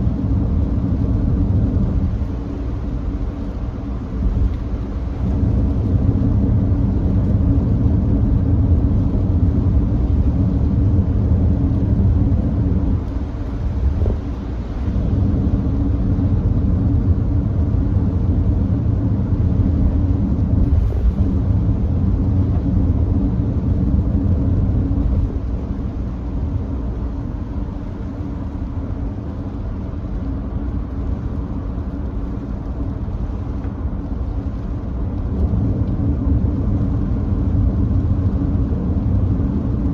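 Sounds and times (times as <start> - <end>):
tyre and road noise: 0.0 - 39.9.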